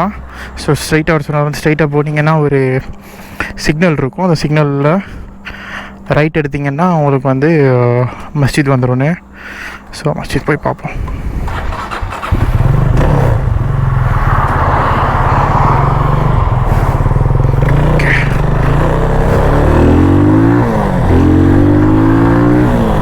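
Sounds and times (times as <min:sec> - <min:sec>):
motorcycle engine accelerating: 0:11.0 - 0:23.0.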